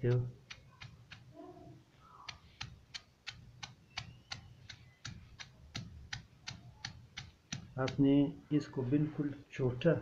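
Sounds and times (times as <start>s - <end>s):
pestle pounding eggshells: 2.3s - 8.0s.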